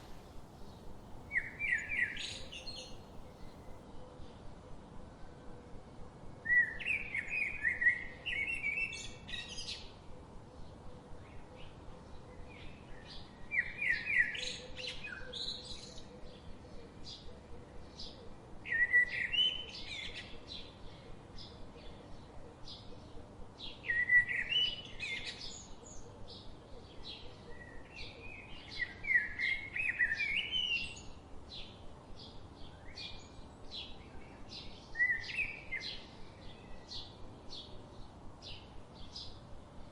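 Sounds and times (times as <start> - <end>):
faint bird chirps: 0.0 - 3.8.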